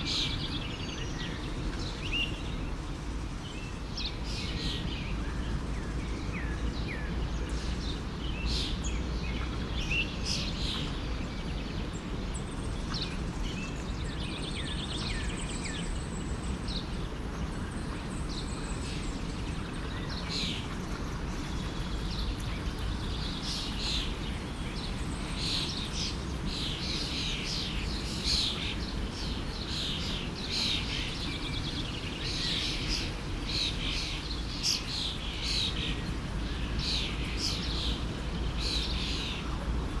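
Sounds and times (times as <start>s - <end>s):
small birds chirping: 3.4s - 40.0s
forest stream rushing: 13.9s - 40.0s.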